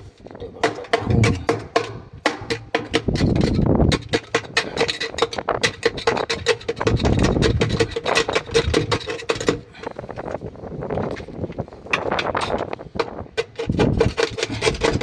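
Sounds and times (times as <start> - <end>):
scrubbing scraping and clicking: 11.9 - 15.0.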